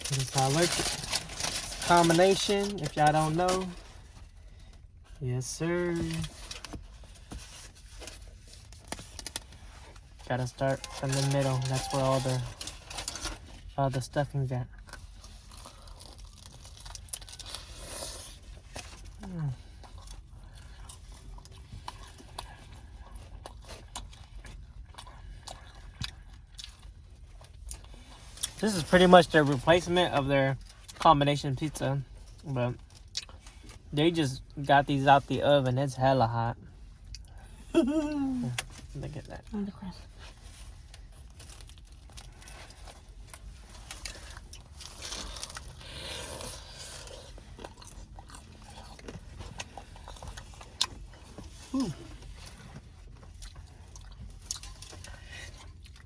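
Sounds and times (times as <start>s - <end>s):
person chewing food: 14.8s - 28.6s, 40.8s - 56.0s.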